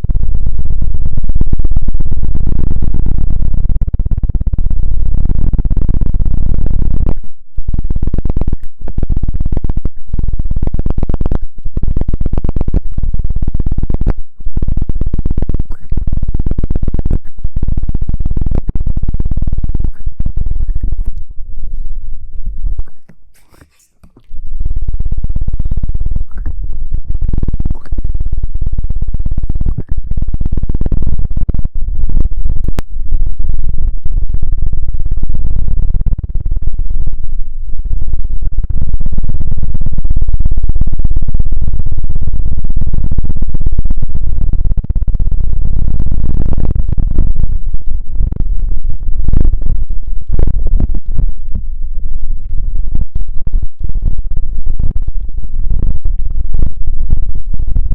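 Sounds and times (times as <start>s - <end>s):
close-up scratching and rubbing: 22.9s - 24.4s.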